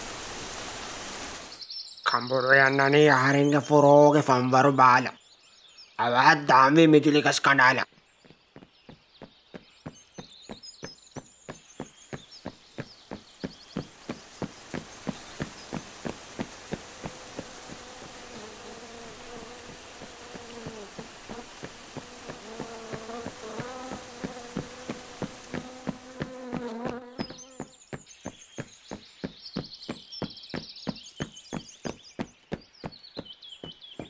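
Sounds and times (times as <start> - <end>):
rain hiss: 0.0 - 1.6, 11.6 - 27.4
footstep taps: 7.9 - 18.4, 19.3 - 34.0
cartoon bees buzzing: 12.1 - 27.8.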